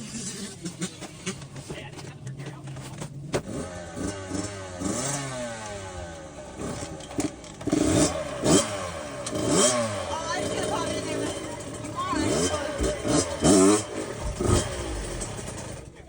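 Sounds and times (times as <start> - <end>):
dirt bike engines revving: 0.0 - 16.0
engine hum: 0.0 - 16.0
knocks and clanks: 12.6 - 16.0.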